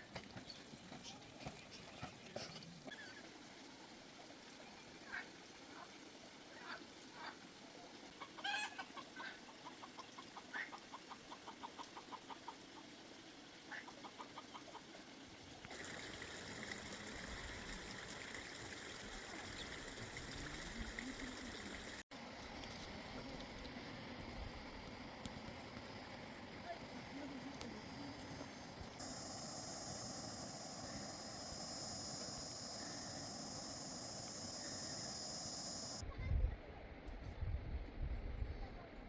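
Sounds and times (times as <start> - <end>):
chickens clucking: 8.2 - 12.9, 13.7 - 15.0
steady background hiss: 26.6 - 36.0.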